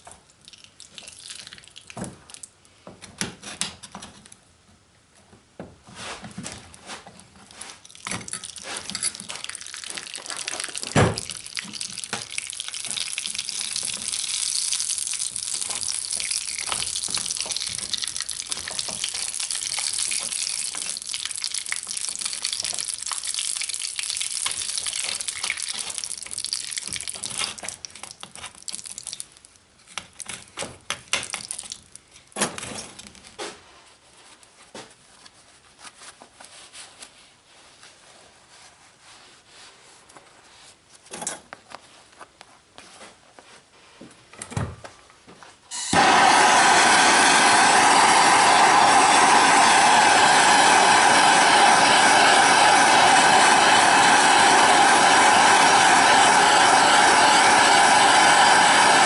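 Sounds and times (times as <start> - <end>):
hot wax sizzling and crackling: 0.5 - 2.5, 7.4 - 33.4.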